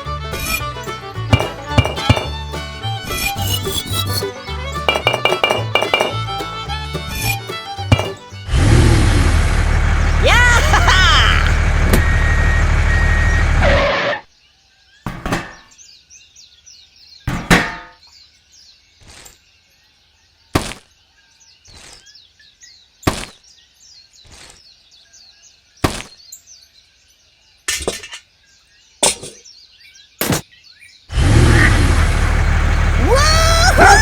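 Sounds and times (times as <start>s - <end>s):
birds chirping: 0.0s - 8.6s, 10.2s - 13.6s, 14.3s - 34.0s
clicks and knocks of hard objects: 1.3s - 2.4s, 4.9s - 6.2s, 7.9s - 8.2s.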